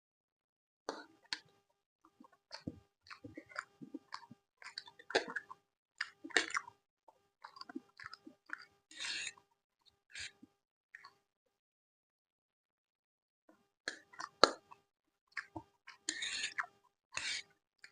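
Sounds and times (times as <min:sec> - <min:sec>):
close chewing and crunching: 0:00.9 - 0:09.4, 0:10.1 - 0:11.2, 0:13.9 - 0:17.9.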